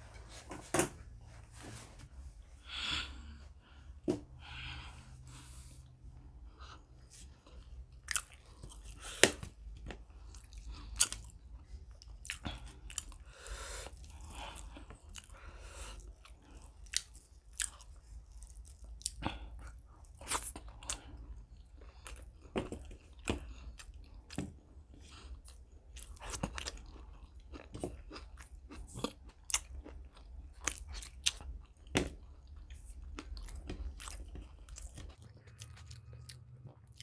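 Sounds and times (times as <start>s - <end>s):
person chewing: 5.3s - 37.0s.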